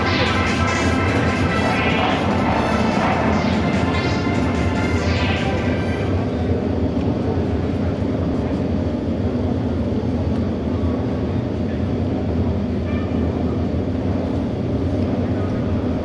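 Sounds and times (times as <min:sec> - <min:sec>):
racing motorcycle engines droning: 0:00.0 - 0:12.3.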